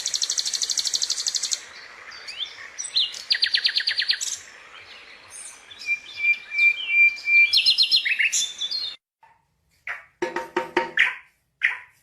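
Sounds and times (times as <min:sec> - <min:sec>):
bird knocking calls: 0:09.2 - 0:11.8.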